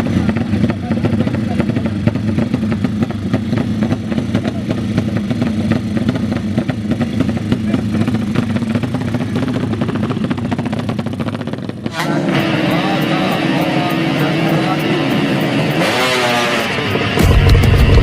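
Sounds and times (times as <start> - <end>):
people's voices: 0.0 - 18.0
racing motorcycle engine running: 0.0 - 18.0.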